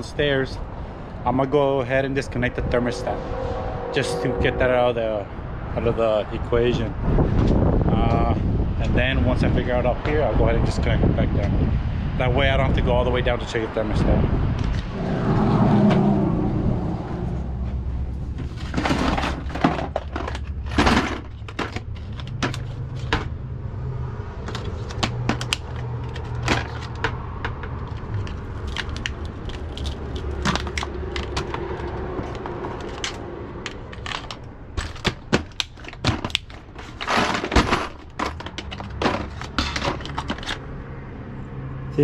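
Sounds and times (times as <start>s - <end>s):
steady low hum: 0.6s - 6.0s
clicks and knocks of handling: 18.4s - 23.3s, 24.4s - 40.6s.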